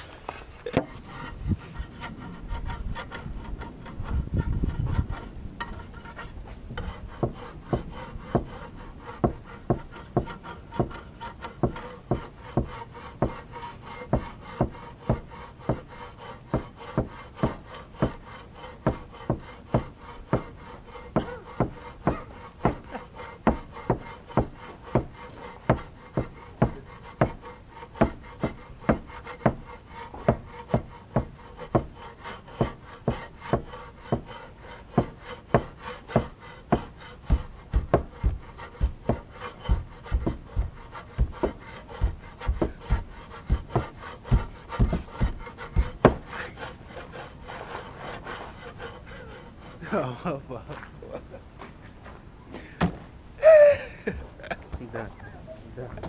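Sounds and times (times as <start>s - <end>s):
rumbling handling noise: 0.0s - 8.5s
rasping scraping strokes: 0.0s - 51.2s.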